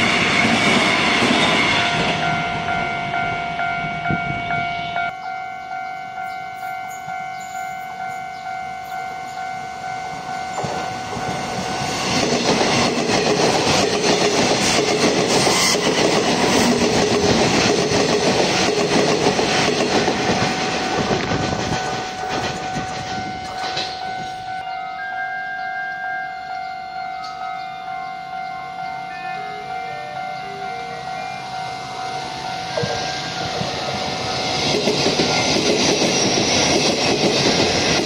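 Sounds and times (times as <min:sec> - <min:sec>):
train wheels clattering on rails: 0:00.0 - 0:02.3, 0:10.5 - 0:24.5, 0:32.7 - 0:38.0
level-crossing bell ringing: 0:00.0 - 0:14.8, 0:19.5 - 0:36.6.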